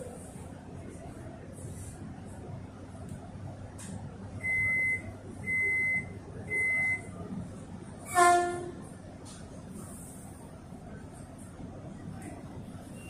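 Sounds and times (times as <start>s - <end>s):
low hum of train: 0.0s - 13.0s
train horn toot: 8.1s - 8.9s.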